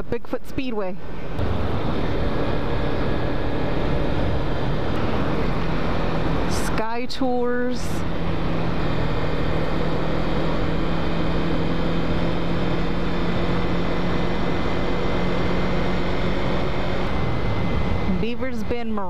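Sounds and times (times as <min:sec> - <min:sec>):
rushing noise: 0:01.0 - 0:07.0
motorcycle engine cruising: 0:01.0 - 0:19.0.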